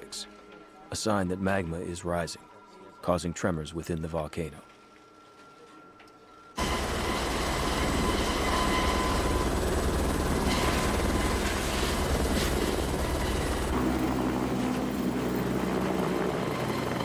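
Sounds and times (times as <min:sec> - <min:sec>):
helicopter rotor beating: 0:06.6 - 0:17.0.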